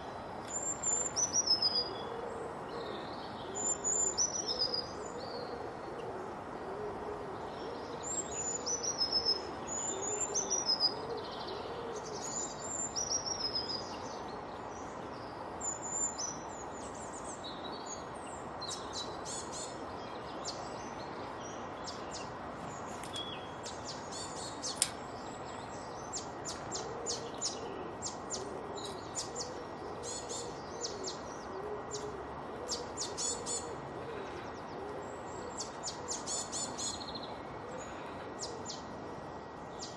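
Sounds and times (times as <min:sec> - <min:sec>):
high whistled birdsong: 0:00.0 - 0:02.1, 0:02.7 - 0:05.5, 0:07.4 - 0:32.1
steady background hiss: 0:00.0 - 0:39.9
low repeated hooting call: 0:01.8 - 0:12.4, 0:26.7 - 0:38.9.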